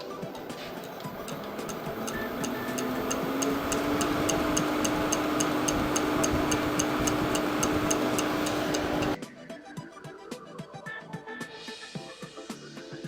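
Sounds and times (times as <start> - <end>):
mixer motor humming: 0.0 - 9.2.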